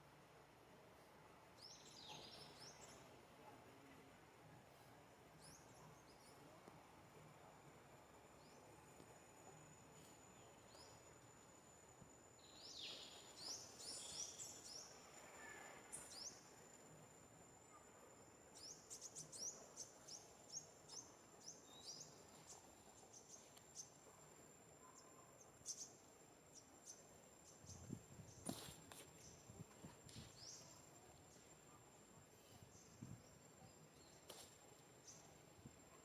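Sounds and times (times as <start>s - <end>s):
small birds chirping: 1.6s - 3.3s, 10.0s - 11.4s, 12.2s - 16.6s, 17.6s - 36.0s.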